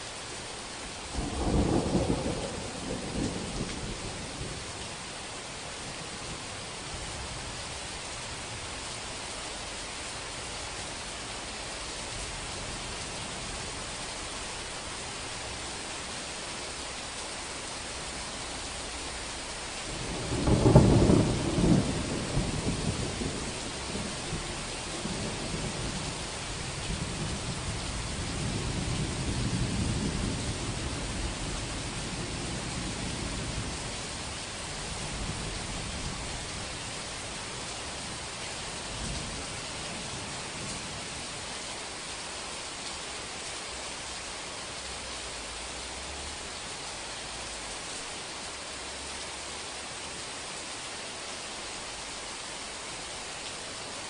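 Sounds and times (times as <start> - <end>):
rain hissing: 0.0 - 54.0
thunder rumbling: 1.1 - 4.8, 20.0 - 33.7.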